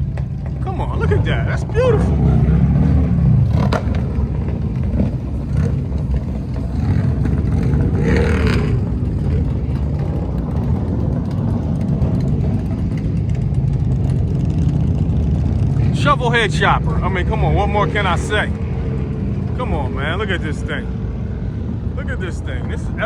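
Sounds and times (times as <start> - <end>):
motorcycle engine rumbling and revving: 0.0 - 23.0.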